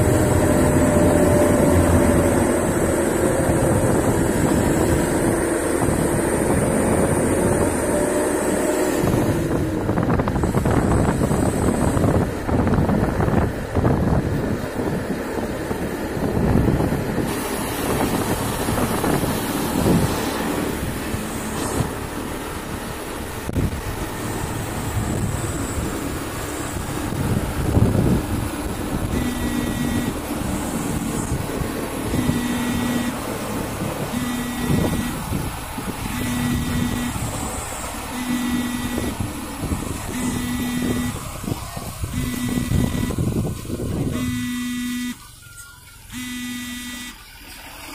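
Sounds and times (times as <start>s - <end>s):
wind buffeting microphone: 0.0s - 44.6s
truck engine rumbling: 0.0s - 47.9s
truck horn blasts: 29.1s - 30.3s, 32.0s - 39.3s, 40.1s - 41.5s, 42.1s - 43.4s, 44.0s - 45.3s, 46.1s - 47.2s.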